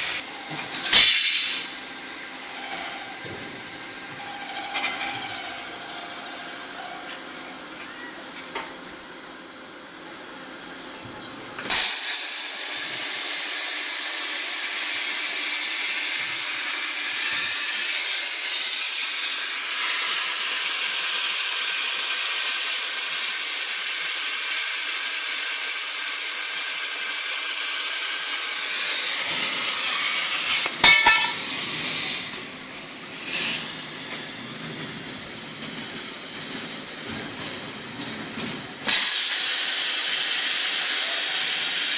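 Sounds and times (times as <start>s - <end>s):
plasma torch hissing: 27.1s - 34.5s, 35.1s - 41.9s.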